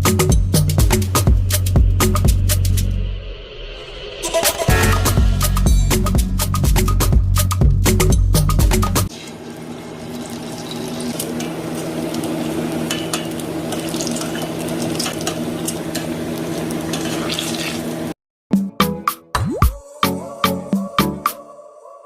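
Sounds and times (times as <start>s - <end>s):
food sizzling in hot oil: 9.1s - 18.1s.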